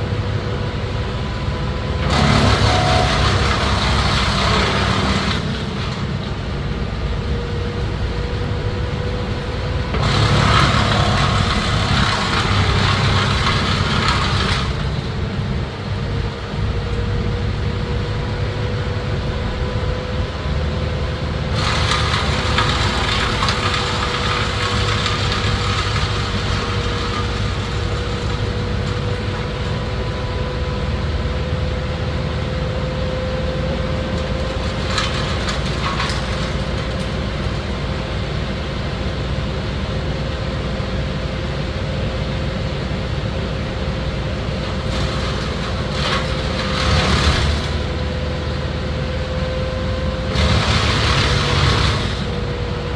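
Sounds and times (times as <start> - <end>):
machinery engine running: 0.0 - 52.9
rough rasping noise: 2.0 - 16.2, 21.5 - 29.0, 44.7 - 48.2, 50.3 - 52.6.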